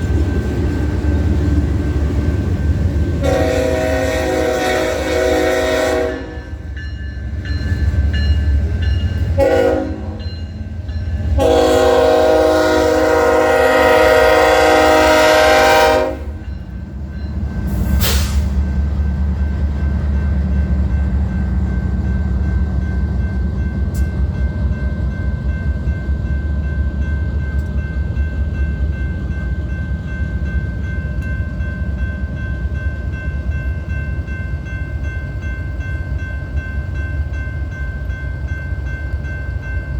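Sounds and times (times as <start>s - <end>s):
train rumbling past: 0.0s - 39.9s
locomotive horn blasts: 3.2s - 6.6s, 9.4s - 10.3s, 11.3s - 16.4s.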